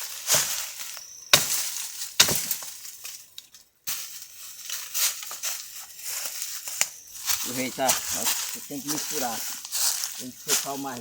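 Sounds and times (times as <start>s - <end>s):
dry branches crackling and rustling: 0.0s - 11.0s
axe striking wood: 1.3s - 2.8s.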